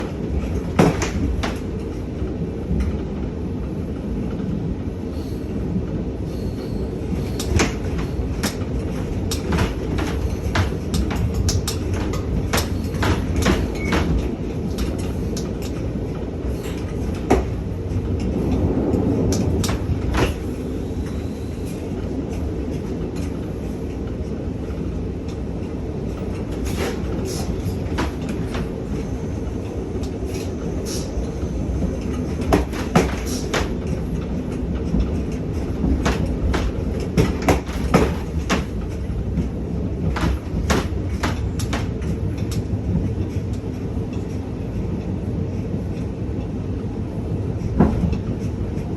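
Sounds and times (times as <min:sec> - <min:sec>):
clanks and knocks: 0:00.0 - 0:02.0, 0:07.2 - 0:15.9, 0:16.5 - 0:18.7, 0:19.3 - 0:20.6, 0:26.2 - 0:29.0, 0:31.9 - 0:42.6
train gangway rumble and rattle: 0:00.0 - 0:48.9.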